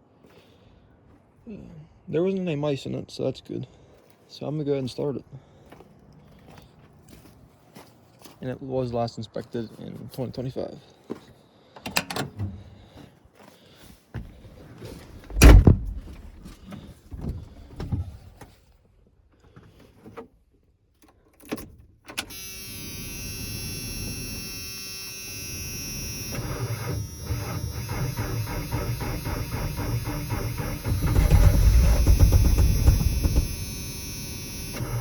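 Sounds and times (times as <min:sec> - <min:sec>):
heavy door shutting: 0:11.8 - 0:12.8, 0:15.1 - 0:16.6, 0:25.1 - 0:35.0
truck engine cranking and starting: 0:11.8 - 0:12.8, 0:15.0 - 0:17.8, 0:22.1 - 0:35.0
clunks: 0:11.8 - 0:13.1, 0:14.2 - 0:18.6, 0:21.4 - 0:35.0.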